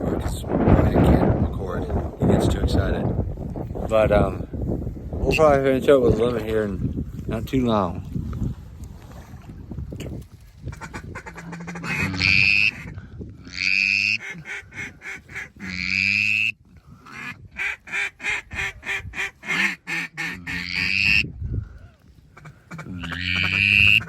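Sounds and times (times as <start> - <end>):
waterfowl reed call: 10.7 - 12.9, 13.5 - 21.2, 22.3 - 24.0.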